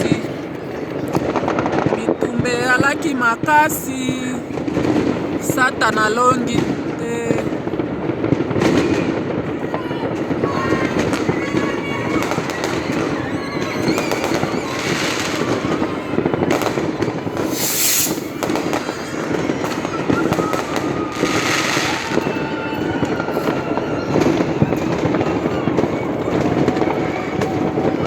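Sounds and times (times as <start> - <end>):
fireworks crackling and banging: 0.0 - 28.0
fireworks hissing bursts: 4.0 - 25.5.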